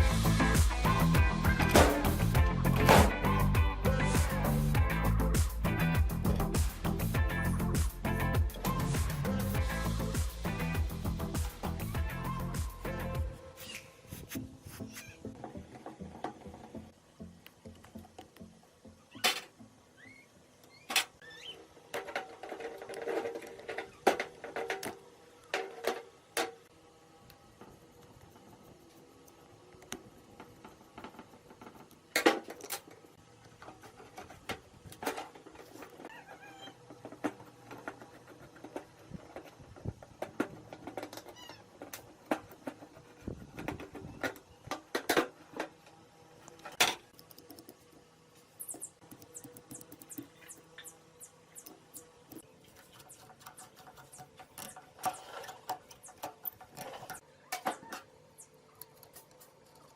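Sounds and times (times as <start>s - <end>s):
scraping on metal: 52.6s - 57.2s.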